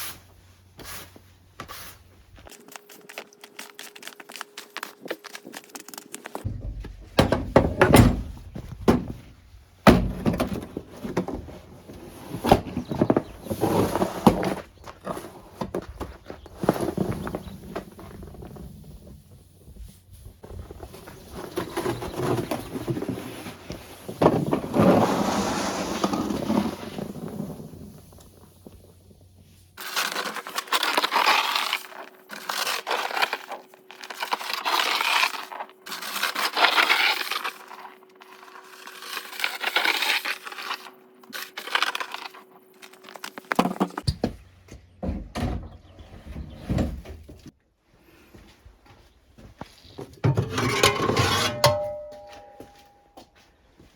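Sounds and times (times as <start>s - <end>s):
shovel scraping through snow: 12.0s - 15.4s, 20.9s - 27.9s.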